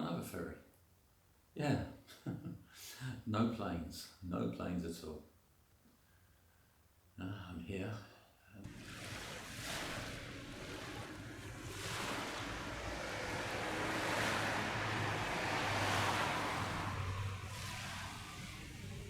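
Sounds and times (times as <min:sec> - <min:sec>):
low steady hum: 0:08.6 - 0:19.0
surf rushing: 0:08.6 - 0:19.0.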